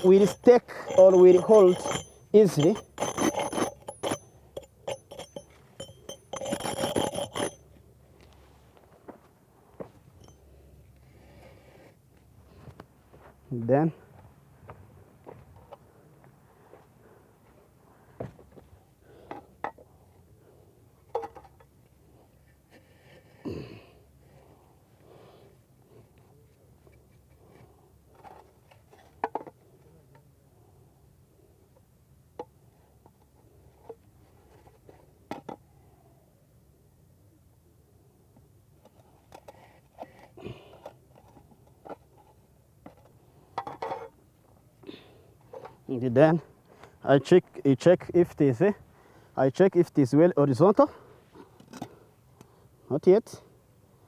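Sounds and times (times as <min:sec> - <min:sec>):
concrete blocks knocking and scraping: 0:00.0 - 0:07.6.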